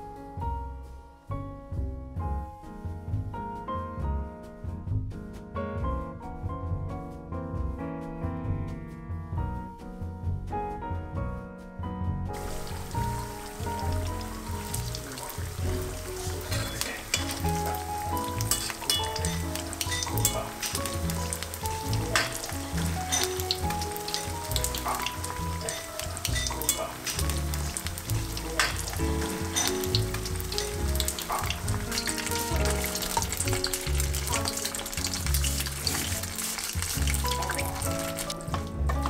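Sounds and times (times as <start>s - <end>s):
background music with bass: 0.0s - 39.0s
food sizzling in hot oil: 12.4s - 39.0s
oil crackling: 12.4s - 39.0s.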